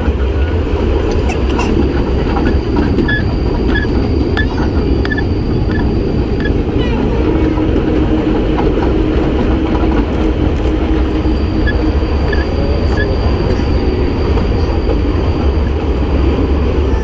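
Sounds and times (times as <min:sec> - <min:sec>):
train wheels rumbling on rail: 0:00.0 - 0:17.0
faint high wheel squeal: 0:01.3 - 0:07.8, 0:11.0 - 0:15.9.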